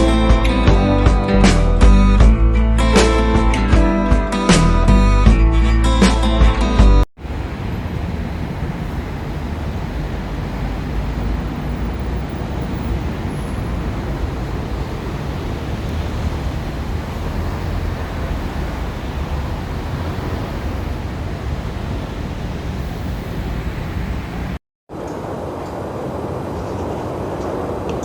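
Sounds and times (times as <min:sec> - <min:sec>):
wind rushing over microphone: 0:07.2 - 0:28.0.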